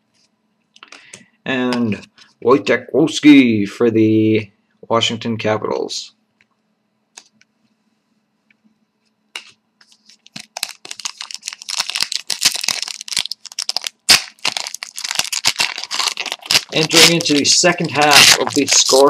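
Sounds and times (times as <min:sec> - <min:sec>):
wrapper tearing and crinkling: 0:10.0 - 0:19.0.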